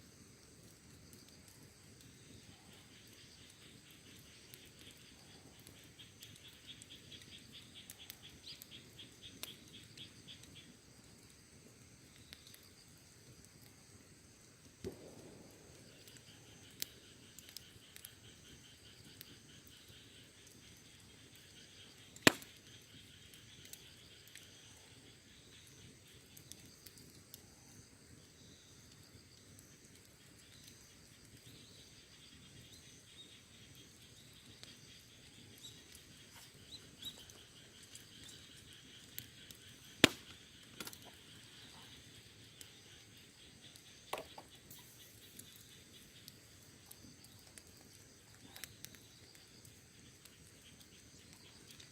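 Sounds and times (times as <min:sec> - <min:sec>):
wood fire crackling: 0:00.0 - 0:51.9
loud sharp pops: 0:14.8 - 0:17.0, 0:22.2 - 0:22.7, 0:39.9 - 0:41.1.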